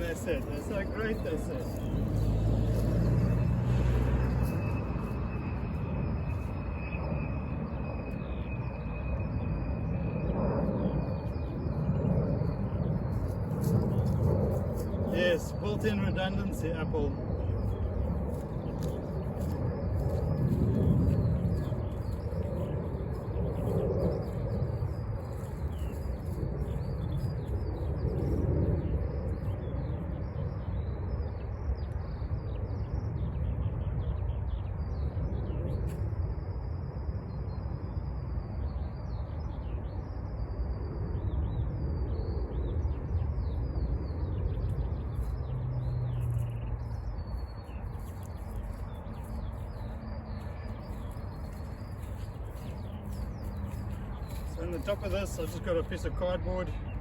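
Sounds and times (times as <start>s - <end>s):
small birds chirping and singing: 0.0s - 3.8s, 11.0s - 36.0s, 41.2s - 57.0s
steady low rumble: 0.0s - 57.0s.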